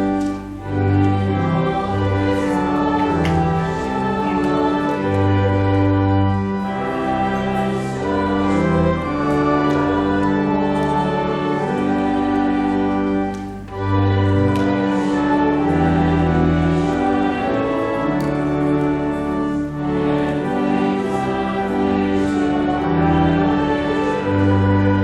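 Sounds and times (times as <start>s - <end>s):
church organ playing a hymn: 0.0s - 25.0s.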